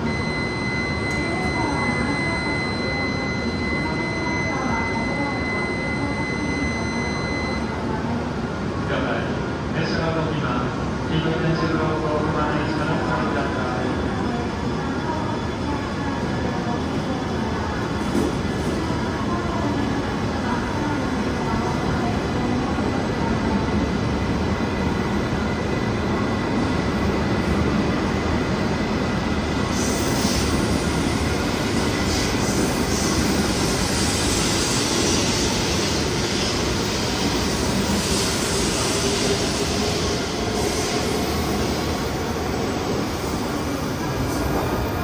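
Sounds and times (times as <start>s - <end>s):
train wheels rumbling on rail: 15.5s - 45.0s.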